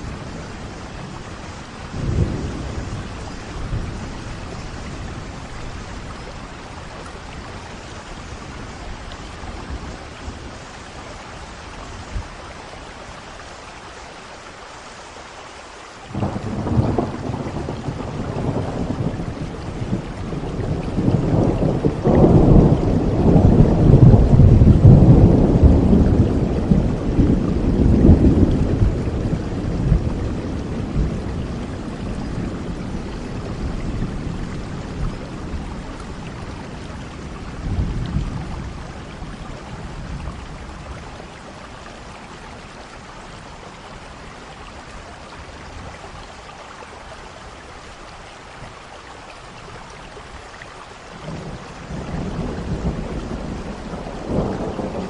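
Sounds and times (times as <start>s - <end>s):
thunder rumbling: 0.0s - 12.4s, 16.1s - 42.7s, 51.2s - 55.0s
steady rain: 0.0s - 55.0s.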